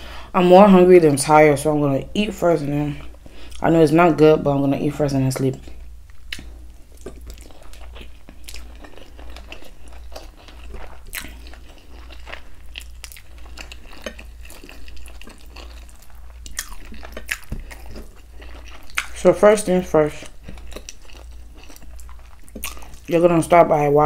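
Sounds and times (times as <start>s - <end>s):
chewing with mouth clicks: 5.4s - 19.2s, 20.0s - 23.2s.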